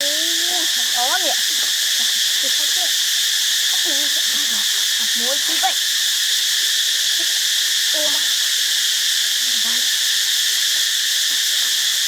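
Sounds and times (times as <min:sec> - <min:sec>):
insects chirping: 0:00.0 - 0:12.0
faint voices: 0:08.0 - 0:08.3, 0:09.5 - 0:09.9.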